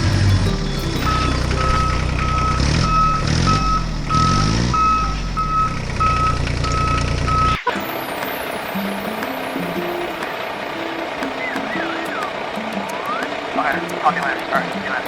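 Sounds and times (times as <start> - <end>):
engine running: 0.0 - 7.6
reversing alarm beeping: 0.5 - 7.6.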